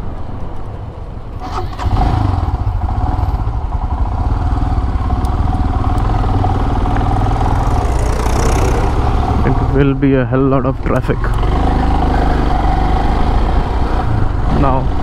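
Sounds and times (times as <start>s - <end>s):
motorcycle engine running: 1.9s - 10.0s.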